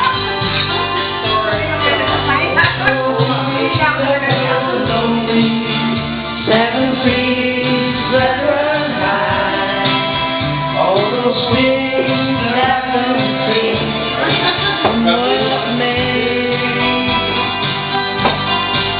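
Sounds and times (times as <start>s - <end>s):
guitar accompaniment: 0.0s - 18.9s
man singing a country ballad: 2.7s - 17.7s.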